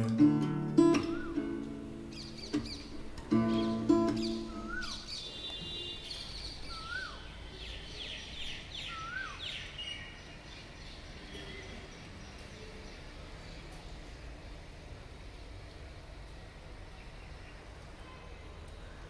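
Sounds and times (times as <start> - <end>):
low background hiss: 0.0 - 19.0
bird rising and falling call: 3.5 - 7.3.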